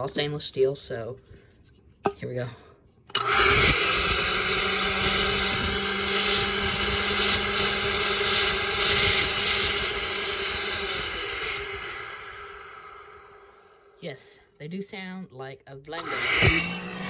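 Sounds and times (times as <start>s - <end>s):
garbage disposal whirring: 3.1s - 14.0s, 16.0s - 17.0s.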